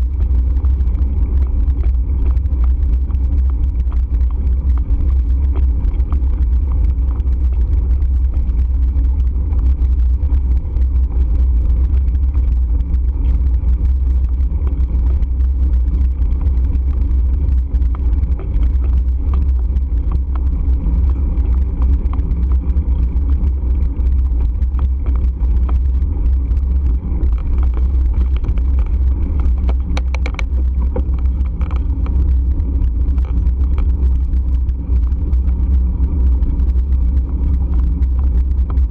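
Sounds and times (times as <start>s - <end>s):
road noise: 0.0s - 38.8s
wind buffeting microphone: 0.0s - 38.9s.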